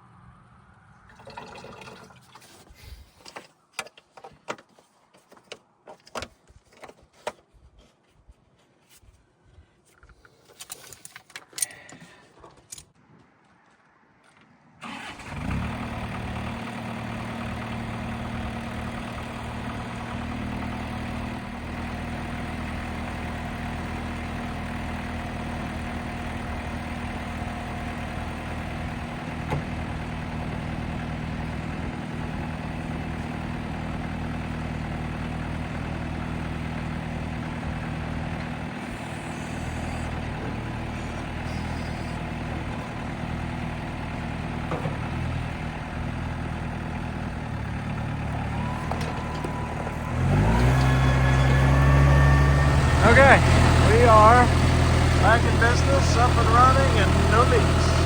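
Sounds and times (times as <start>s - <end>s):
tractor engine idling: 14.8s - 58.0s.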